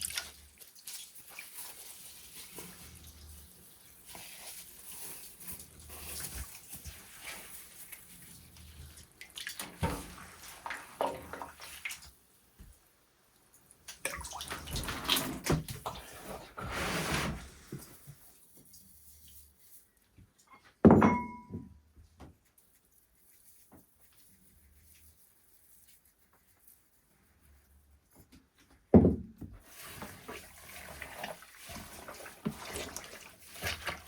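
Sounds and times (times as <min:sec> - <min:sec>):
water splashing and sloshing: 0:00.0 - 0:12.8, 0:13.6 - 0:19.7, 0:29.6 - 0:34.0
sharp ringing knock: 0:20.9 - 0:21.7.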